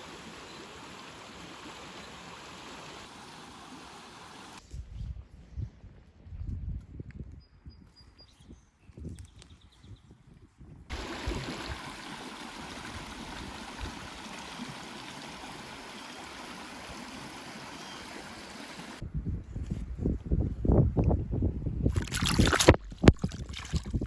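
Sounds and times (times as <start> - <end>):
stream water rushing: 0.0 - 4.6, 10.9 - 19.0.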